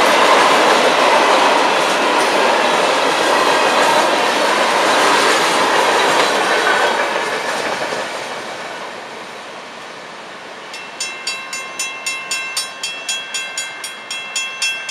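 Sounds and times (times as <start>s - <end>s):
freight train cars rolling past: 0.0s - 14.9s
crossing bell ringing: 10.7s - 14.9s.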